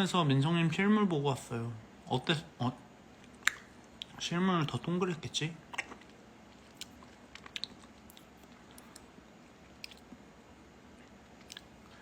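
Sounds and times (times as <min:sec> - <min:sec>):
person chewing: 0:05.7 - 0:10.2, 0:11.0 - 0:12.0.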